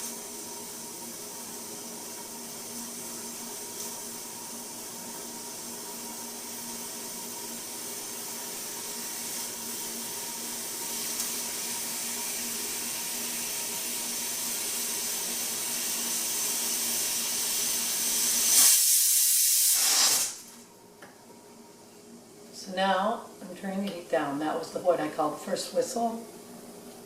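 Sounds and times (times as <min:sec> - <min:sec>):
pressure cooker hissing steam: 0:00.0 - 0:20.6
pressure cooker whistle: 0:13.1 - 0:20.5.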